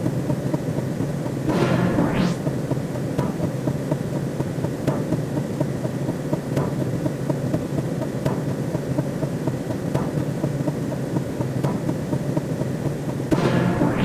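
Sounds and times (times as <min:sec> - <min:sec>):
low pulsing electronic drone: 0:01.5 - 0:02.7, 0:13.3 - 0:14.0.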